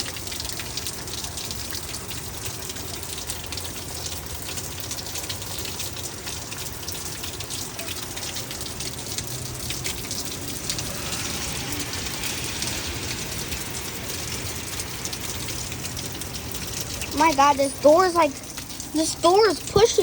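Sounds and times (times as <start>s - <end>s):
heavy rain falling: 0.0s - 20.0s
low rumble: 10.0s - 17.2s.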